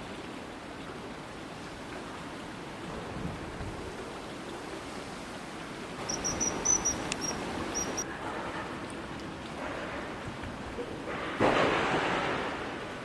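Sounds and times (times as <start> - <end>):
flowing river water: 0.0 - 13.0
kingfisher high piping notes: 6.0 - 8.0.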